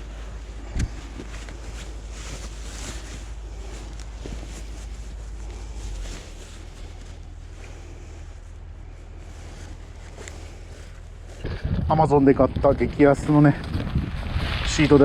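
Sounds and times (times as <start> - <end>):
wind buffeting microphone: 11.1 - 15.0.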